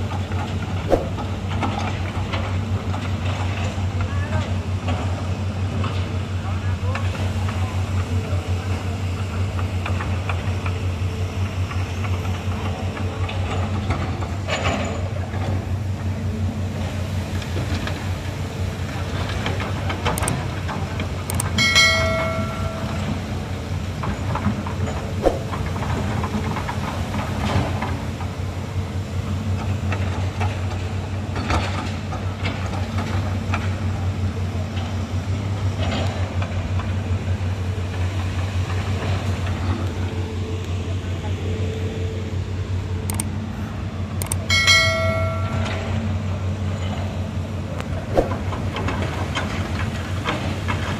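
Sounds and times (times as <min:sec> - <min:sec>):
heavy diesel engine droning: 0:00.0 - 0:50.9
scattered clicks: 0:20.1 - 0:20.4, 0:21.2 - 0:21.6, 0:43.1 - 0:43.3, 0:44.2 - 0:44.5.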